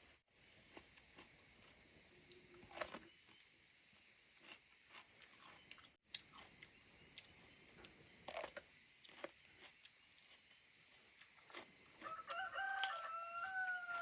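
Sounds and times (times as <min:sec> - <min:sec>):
rooster crowing: 0:12.0 - 0:14.0.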